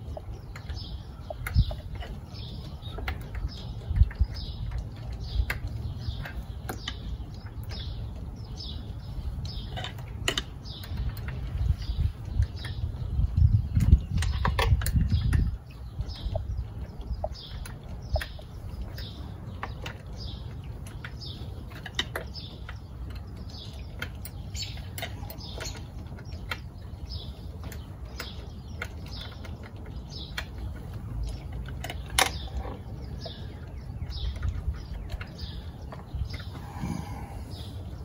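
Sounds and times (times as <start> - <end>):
small bird chirping: 0.0 - 38.0.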